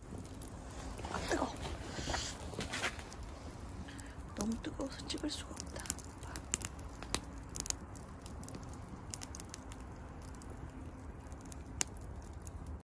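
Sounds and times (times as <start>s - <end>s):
firewood crackling and popping: 0.0s - 12.8s
low rumble of fire: 0.0s - 12.8s.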